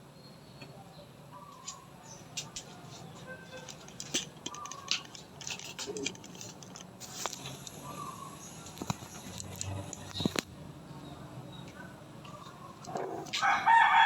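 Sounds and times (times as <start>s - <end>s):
sharp clicks and ticks: 3.7s - 10.5s.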